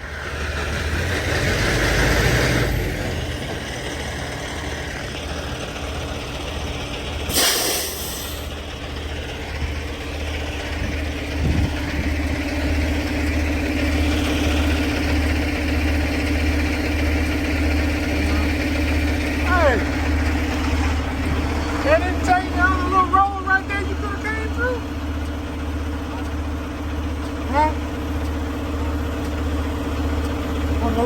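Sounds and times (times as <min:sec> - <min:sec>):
diesel truck engine rumbling: 0:00.0 - 0:31.0
air brake hiss: 0:07.3 - 0:08.6.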